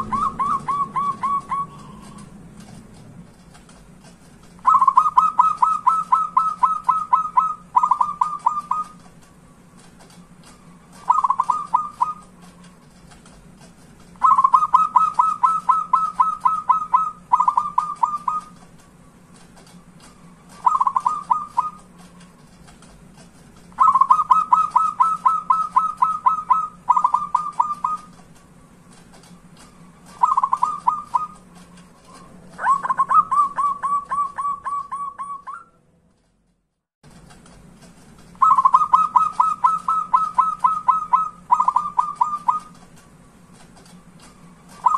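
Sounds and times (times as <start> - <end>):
dove cooing: 0.0 - 2.4, 4.6 - 9.1, 10.6 - 12.6, 14.2 - 18.6, 20.4 - 21.9, 23.8 - 28.2, 30.0 - 31.5, 32.1 - 35.7, 38.4 - 42.8, 44.4 - 44.9
steady low hum: 0.0 - 44.9.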